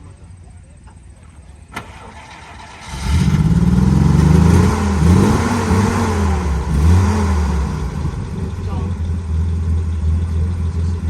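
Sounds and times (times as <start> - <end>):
engine running loudly: 2.9 - 11.0.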